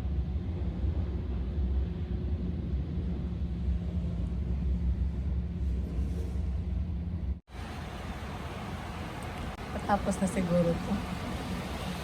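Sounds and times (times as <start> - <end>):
low machinery rumble: 0.0 - 12.0.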